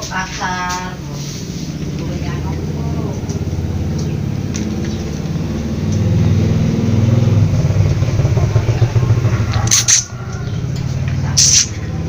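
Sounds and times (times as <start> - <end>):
motor engine running: 0.0 - 12.0.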